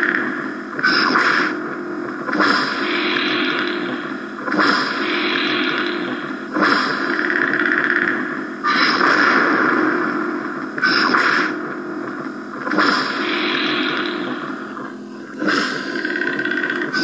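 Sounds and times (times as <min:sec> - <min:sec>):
lightsaber buzzing hum: 0:00.0 - 0:17.0
lightsaber swing and clash effects: 0:00.7 - 0:01.6, 0:02.2 - 0:07.2, 0:08.6 - 0:10.0, 0:10.7 - 0:11.6, 0:12.6 - 0:16.0.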